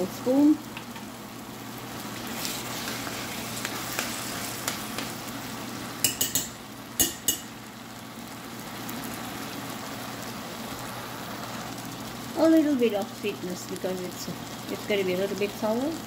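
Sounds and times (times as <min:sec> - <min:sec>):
food sizzling in a pot: 0:00.0 - 0:16.0
utensil clinking against pot: 0:06.0 - 0:07.5.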